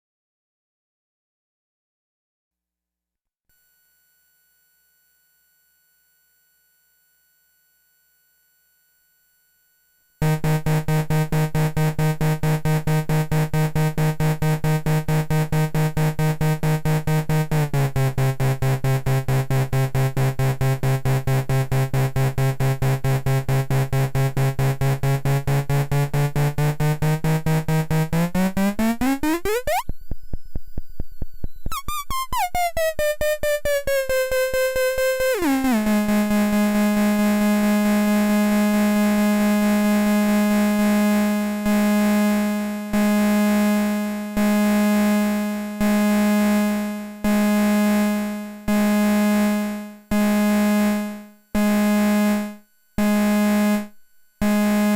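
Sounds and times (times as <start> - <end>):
pulsing buzzy synth tone: 10.2 - 54.9.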